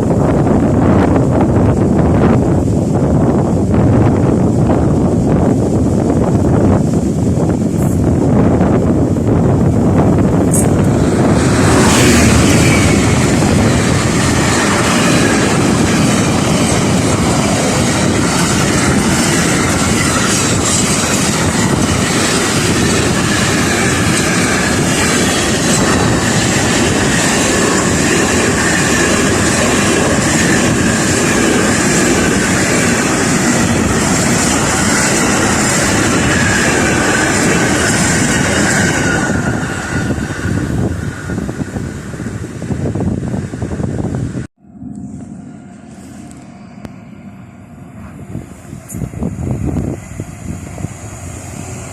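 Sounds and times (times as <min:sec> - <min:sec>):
train wheels rumbling and clattering: 0:00.0 - 0:44.5
high wheel squeal: 0:10.5 - 0:42.0.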